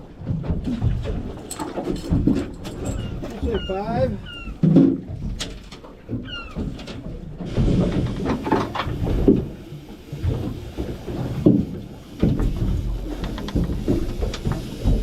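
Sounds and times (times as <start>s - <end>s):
knocks from boat and water: 0.0s - 15.0s
gull cry: 2.9s - 4.6s.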